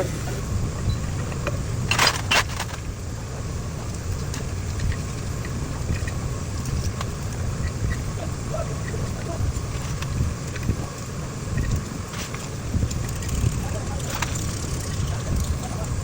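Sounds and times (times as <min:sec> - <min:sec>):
low engine rumble: 0:00.0 - 0:16.0.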